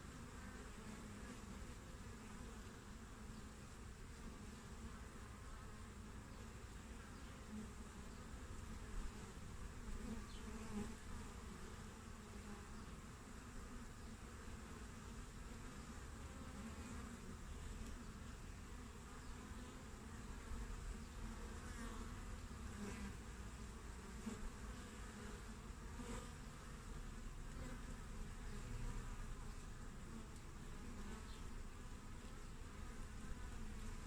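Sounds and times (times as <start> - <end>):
honeybees buzzing: 0.0 - 34.0.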